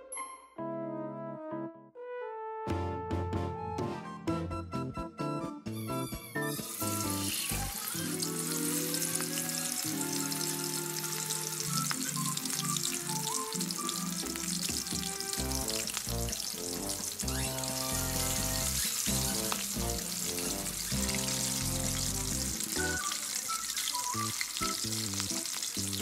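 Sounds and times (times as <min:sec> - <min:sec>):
shrimp sizzling in hot fat: 0:06.4 - 0:26.0.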